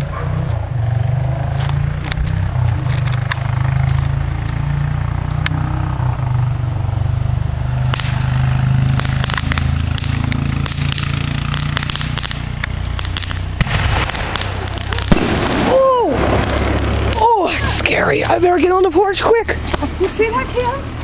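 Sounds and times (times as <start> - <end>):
firework crackling: 0.0 - 21.0
low rumble: 0.0 - 21.0.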